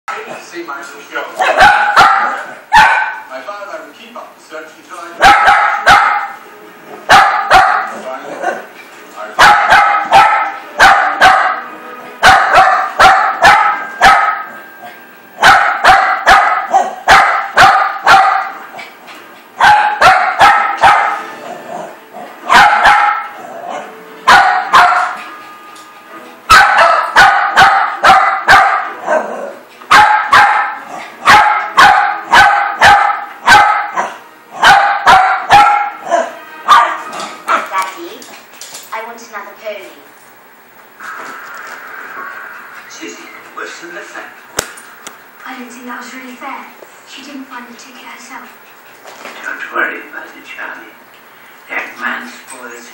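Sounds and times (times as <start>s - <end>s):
dog barking: 1.4s - 3.3s, 5.2s - 6.4s, 7.1s - 8.6s, 9.4s - 14.6s, 15.4s - 18.6s, 19.6s - 21.3s, 22.5s - 25.2s, 26.5s - 37.9s.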